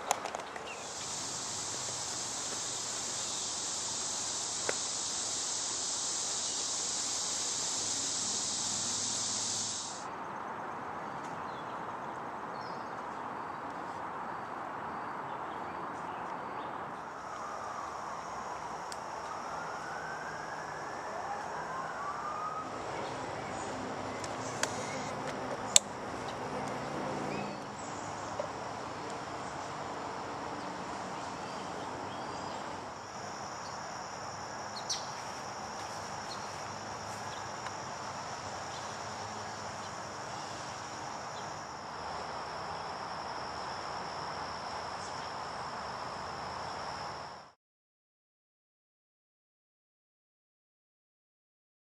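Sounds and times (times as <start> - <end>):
distant traffic: 0.0 - 47.4
high-pitched insect-like trill: 0.7 - 10.1, 32.3 - 47.5
distant siren wailing: 17.0 - 28.2
sharp clicks: 24.2 - 25.1.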